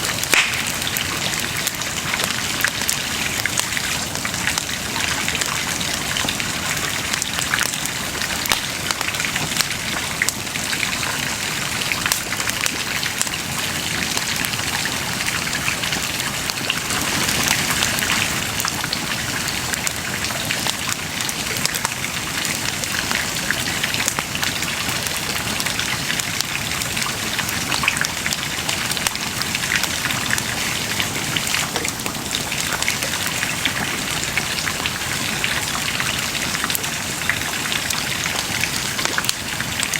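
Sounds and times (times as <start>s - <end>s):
bonfire crackling: 0.0s - 4.7s.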